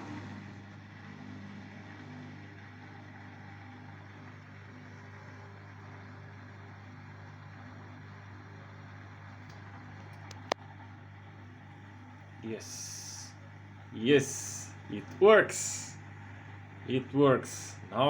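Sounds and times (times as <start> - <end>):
washing machine humming: 0.0 - 18.0.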